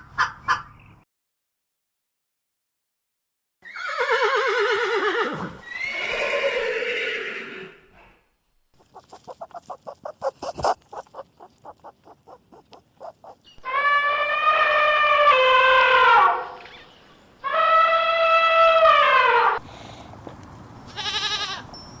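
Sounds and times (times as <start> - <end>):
goat bleating: 8.8 - 13.4, 20.9 - 21.7
rapid short animal calls: 8.8 - 13.6.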